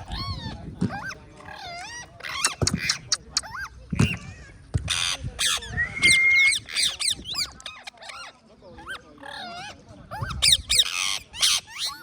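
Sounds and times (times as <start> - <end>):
parrots chirping and squawking: 0.0 - 12.0
parrot whistle: 5.5 - 7.2.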